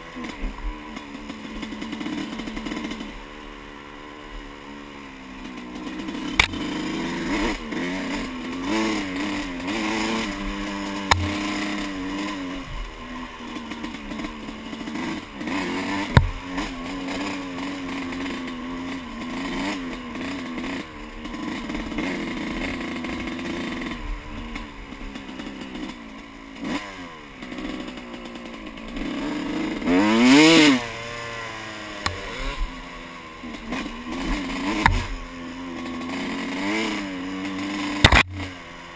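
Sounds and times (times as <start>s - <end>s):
dirt bike engine revving: 0.0s - 38.9s
sharp knocks: 11.0s - 11.6s, 34.8s - 35.2s, 38.0s - 38.4s.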